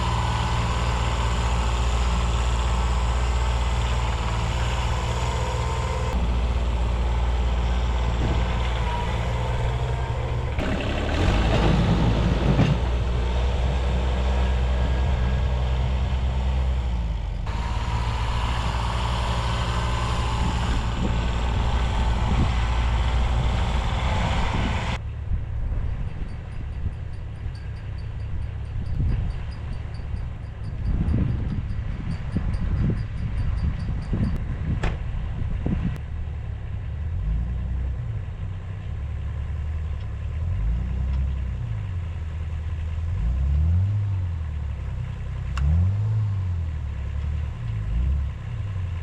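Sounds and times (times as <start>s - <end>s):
diesel tractor engine running: 0.0s - 49.0s.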